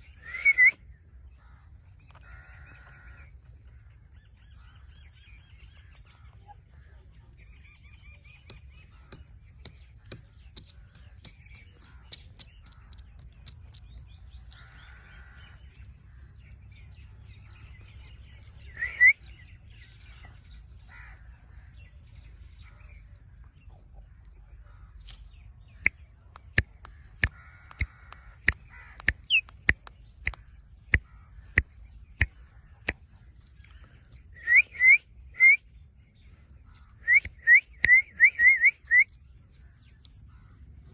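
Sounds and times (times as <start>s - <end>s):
sharp clicks: 25.8s - 33.0s
parakeet squawking: 27.6s - 29.6s.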